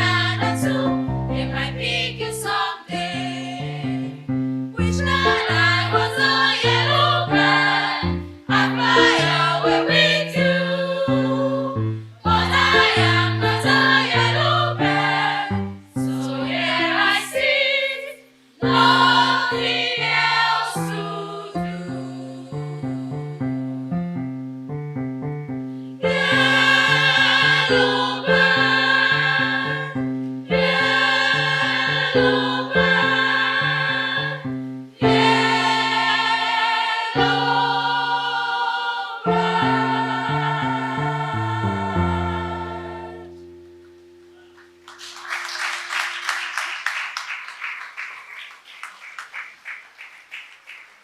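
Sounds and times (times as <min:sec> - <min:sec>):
female choir singing: 0:00.0 - 0:24.0, 0:26.0 - 0:43.4
audience applause: 0:44.6 - 0:51.0.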